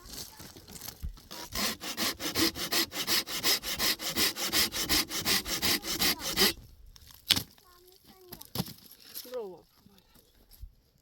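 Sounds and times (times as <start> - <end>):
hand saw cutting wood: 1.3 - 6.6.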